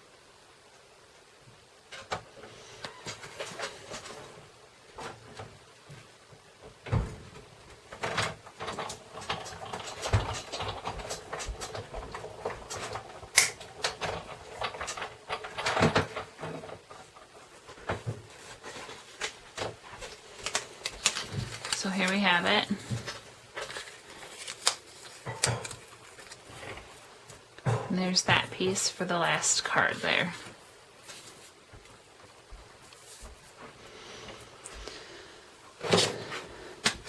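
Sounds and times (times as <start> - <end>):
paper rustling: 17.6 - 27.5, 28.3 - 33.6.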